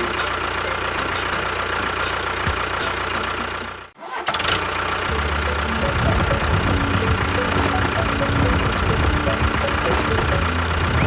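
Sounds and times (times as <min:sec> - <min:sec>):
engine running: 0:00.0 - 0:11.0
engine starting: 0:01.6 - 0:05.1, 0:05.8 - 0:11.0.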